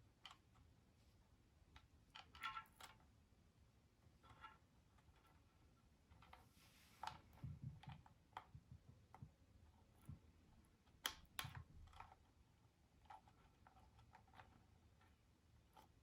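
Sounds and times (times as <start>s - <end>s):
clicks and taps of small objects: 7.0s - 12.4s.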